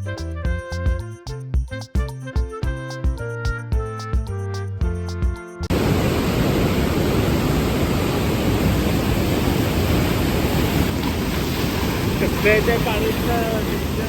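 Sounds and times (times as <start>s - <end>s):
waterfall roaring: 5.7s - 14.0s.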